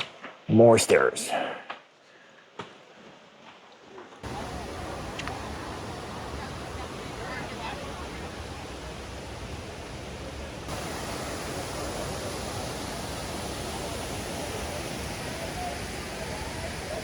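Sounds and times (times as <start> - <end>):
waterfall rushing: 4.2 - 17.0.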